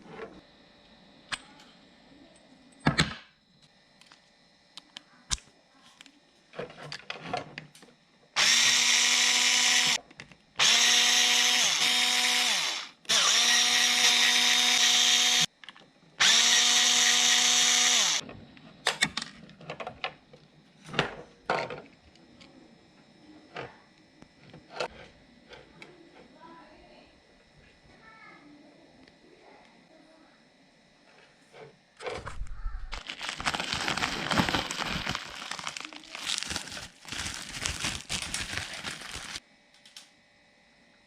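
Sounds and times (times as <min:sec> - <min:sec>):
power drill motor whining: 0:08.4 - 0:10.0, 0:10.6 - 0:15.5, 0:16.2 - 0:18.2.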